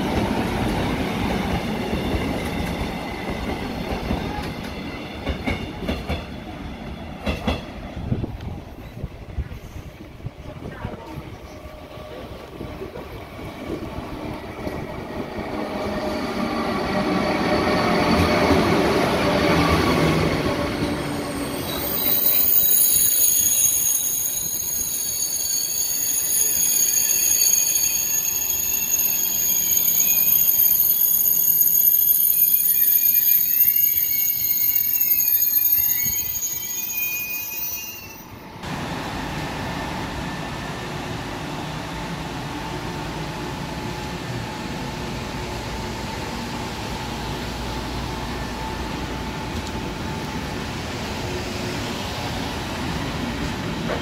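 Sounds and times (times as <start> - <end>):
train rumble: 0.0 - 23.0
train wheels and brakes squealing: 8.8 - 10.1, 13.6 - 38.6.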